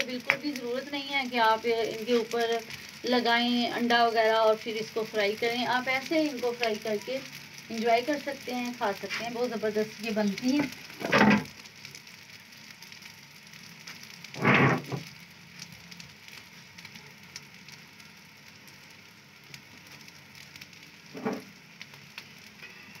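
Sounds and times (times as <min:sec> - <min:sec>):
food sizzling in oil: 0:00.0 - 0:23.0.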